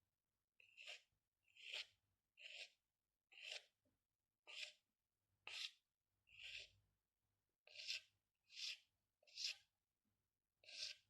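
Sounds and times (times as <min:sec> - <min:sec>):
pencil scratching on paper: 0:00.6 - 0:03.8, 0:04.4 - 0:06.8, 0:07.6 - 0:09.8, 0:10.6 - 0:11.0.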